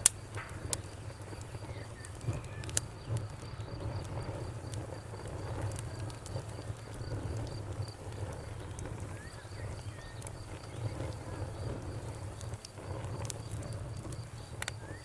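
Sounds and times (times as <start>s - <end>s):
crickets chirping: 0.0s - 15.0s
wood fire crackling: 0.0s - 15.0s
faint bird chirps: 0.7s - 3.9s, 8.5s - 11.7s, 14.8s - 15.0s.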